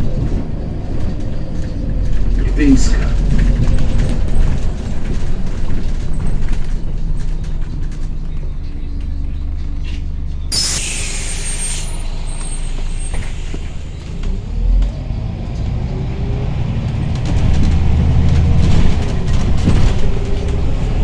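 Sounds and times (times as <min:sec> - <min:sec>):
bus diesel engine running: 0:00.0 - 0:21.0
compressed air hiss: 0:10.5 - 0:14.6.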